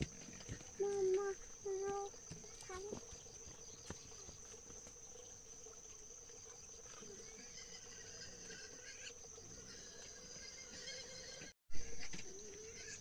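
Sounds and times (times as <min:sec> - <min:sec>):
insect chirring: 0:00.0 - 0:10.0
faint insect chirps: 0:00.0 - 0:11.2.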